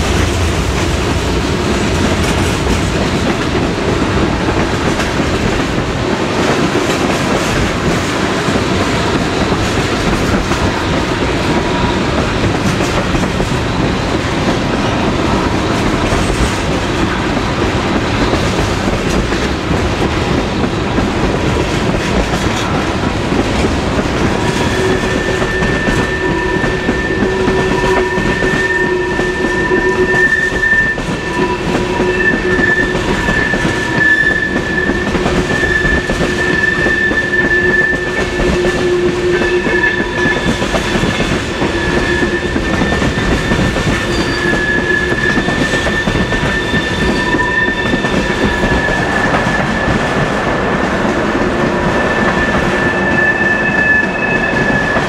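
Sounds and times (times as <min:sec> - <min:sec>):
train wheels on rails: 0:00.0 - 0:55.0
high-pitched wheel squeal: 0:24.6 - 0:50.1, 0:51.9 - 0:55.0.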